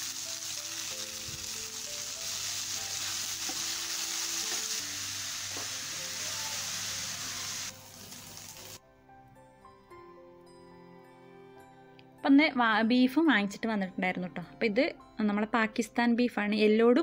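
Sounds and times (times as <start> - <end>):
beans sizzling in oil: 0.0 - 8.8.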